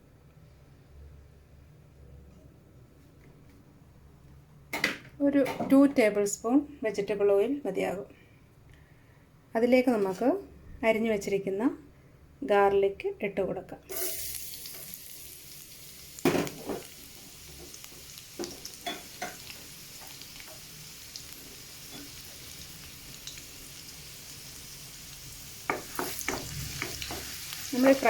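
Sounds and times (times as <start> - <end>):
garlic sizzling in oil: 13.9 - 28.0.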